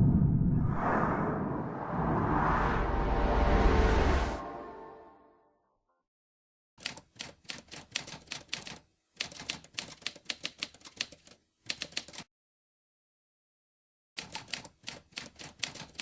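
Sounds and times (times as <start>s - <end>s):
typewriter keys clacking: 6.8s - 12.3s, 14.2s - 16.0s.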